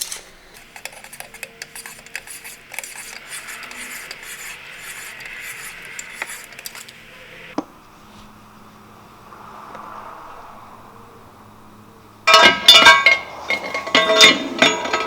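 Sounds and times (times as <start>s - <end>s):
metal tools clinking and scraping: 0.0s - 7.1s, 12.3s - 15.0s
rubbing: 0.0s - 8.4s.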